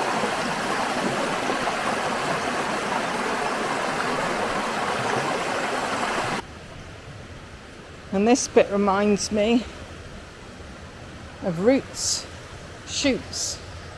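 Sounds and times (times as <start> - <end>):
water rushing over cascades: 0.0 - 6.4.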